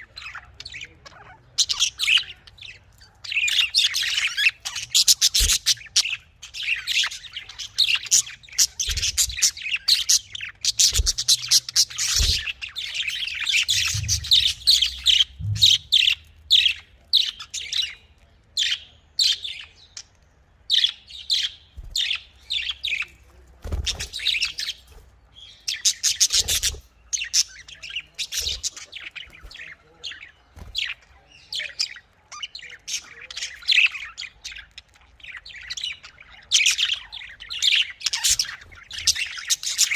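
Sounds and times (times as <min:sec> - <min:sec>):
budgerigars chirping and chattering: 0:00.0 - 0:39.9
soft low thumps: 0:13.7 - 0:16.2.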